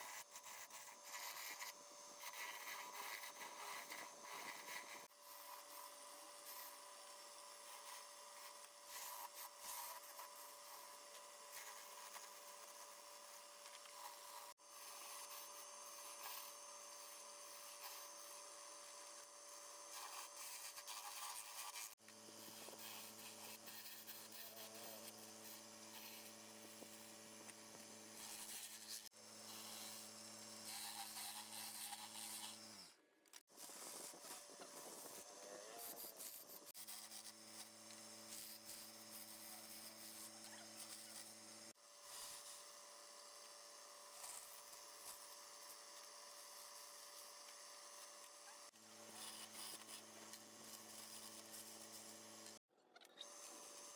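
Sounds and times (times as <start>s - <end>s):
scratchy rubbing and hiss: 0.0s - 6.8s, 19.9s - 27.2s, 28.2s - 32.7s, 49.1s - 52.1s
faint motor hum: 0.0s - 53.9s.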